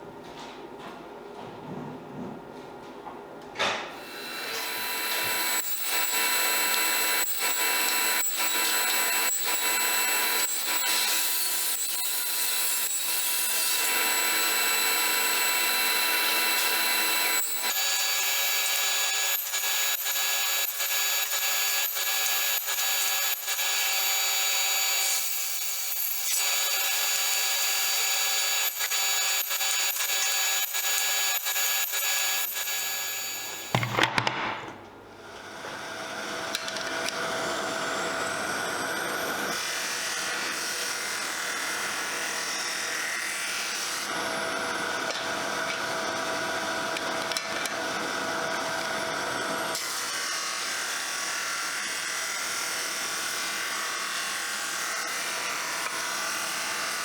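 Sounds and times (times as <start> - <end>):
power tool motor whine: 4.0 - 34.0, 35.2 - 57.0.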